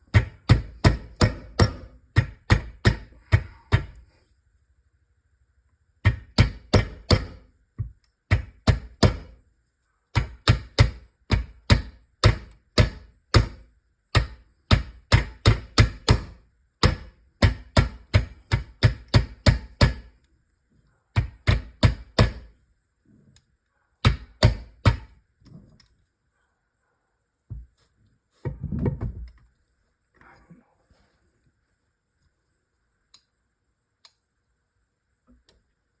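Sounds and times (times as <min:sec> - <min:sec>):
hammer tapping on metal: 0:00.1 - 0:04.0, 0:06.0 - 0:07.4.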